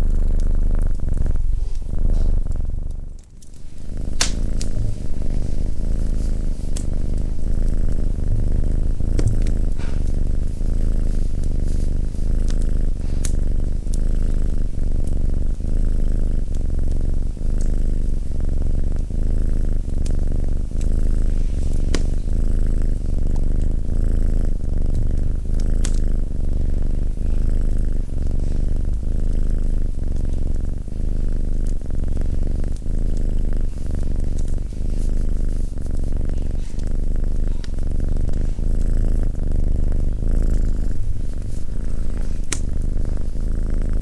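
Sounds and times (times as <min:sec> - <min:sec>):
cat purring: 0:00.0 - 0:44.0
wood fire crackling: 0:01.4 - 0:12.7.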